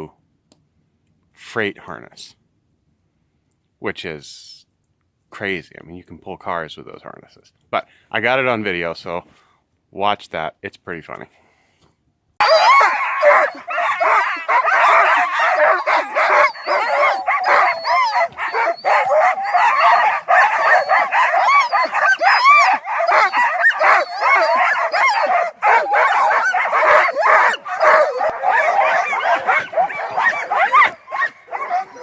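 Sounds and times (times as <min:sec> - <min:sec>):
dogs barking and yelping: 0:12.4 - 0:32.0.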